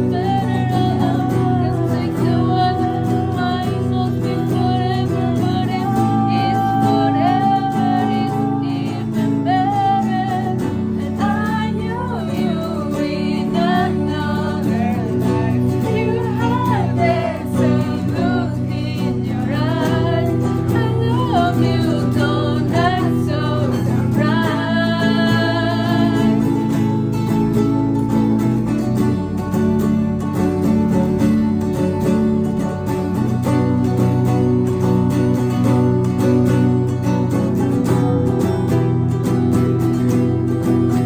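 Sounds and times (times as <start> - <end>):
woman singing: 0.0 - 28.9
acoustic guitar: 0.0 - 41.0.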